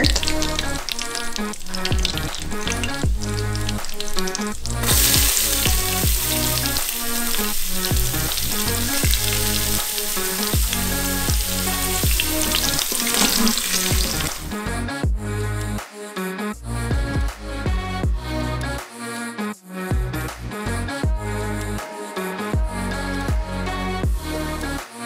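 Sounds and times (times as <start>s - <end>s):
spices sizzling in hot ghee: 0.0s - 14.5s
background music with steady beat: 0.0s - 25.0s.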